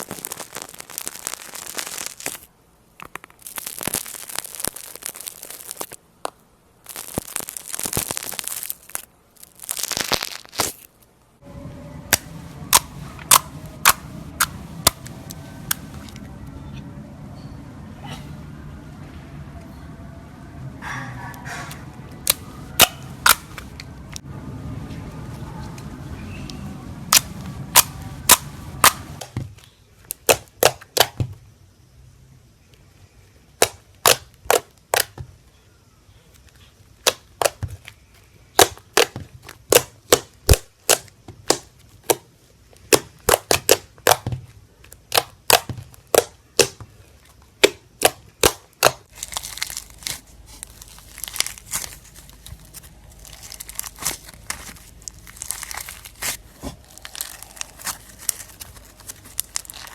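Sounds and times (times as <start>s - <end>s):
slime crackling crinkle: 0.0s - 11.1s, 12.1s - 16.3s, 22.1s - 24.2s, 25.0s - 31.1s, 36.3s - 59.9s.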